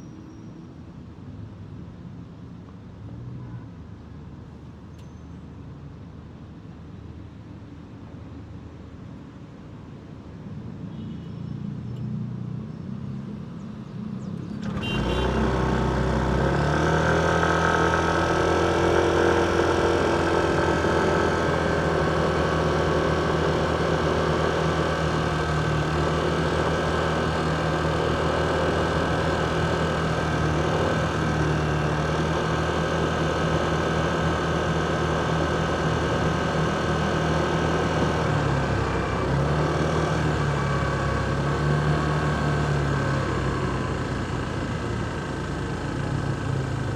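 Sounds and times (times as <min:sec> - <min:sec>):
vehicle engine idling: 0:14.5 - 0:46.9.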